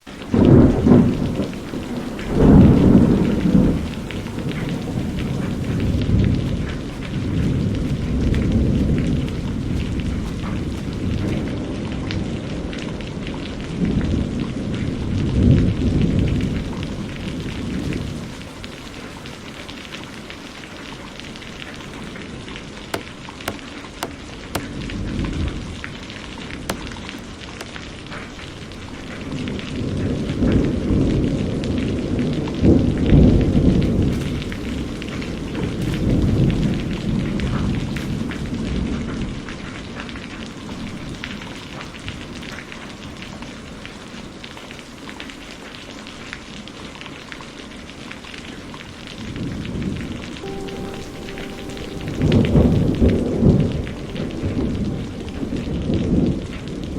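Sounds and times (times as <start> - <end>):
steady rain falling: 0.0 - 56.9
low rolls of thunder: 0.2 - 18.3, 28.5 - 40.0, 49.2 - 56.9.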